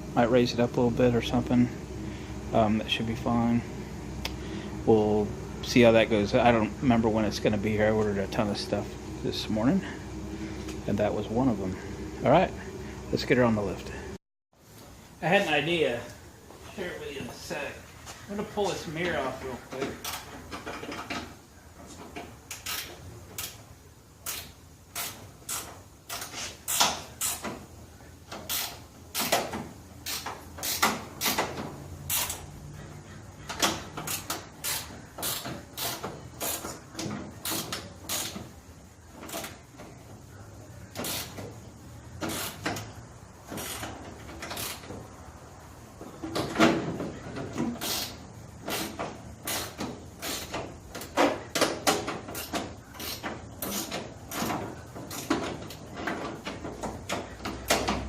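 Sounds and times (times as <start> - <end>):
sharp metallic clicks and knocks: 24.2 - 27.7, 28.3 - 32.5, 46.0 - 58.0.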